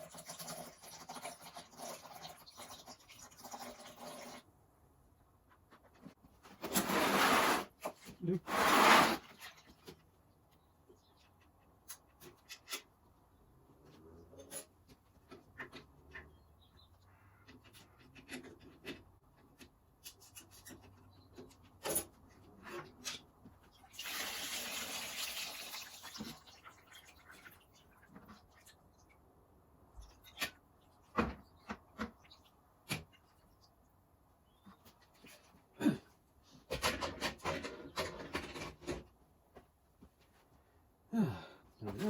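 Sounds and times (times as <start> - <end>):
rush of pouring liquid: 23.9 - 27.7.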